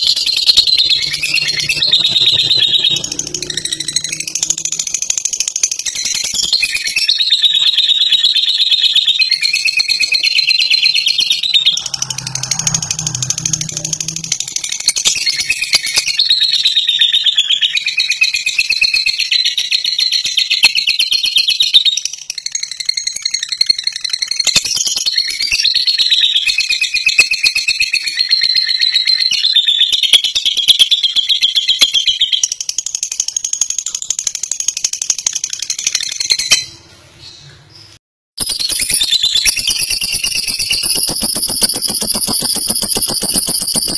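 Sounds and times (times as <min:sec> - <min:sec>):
bird chattering trill: 0:00.0 - 0:19.3, 0:38.5 - 0:43.9.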